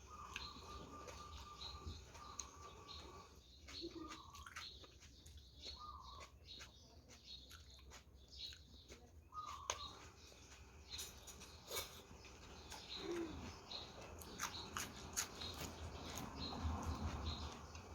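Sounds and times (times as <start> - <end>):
bird calling: 0.0 - 4.6, 5.6 - 6.3, 10.9 - 14.8
person chewing: 0.0 - 17.9.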